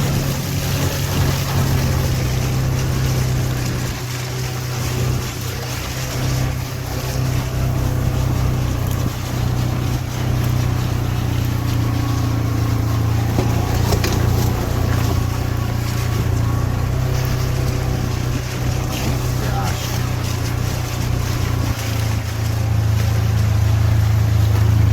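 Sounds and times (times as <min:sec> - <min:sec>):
utility vehicle engine driving: 0:00.0 - 0:24.9
short knocks: 0:12.0 - 0:16.6.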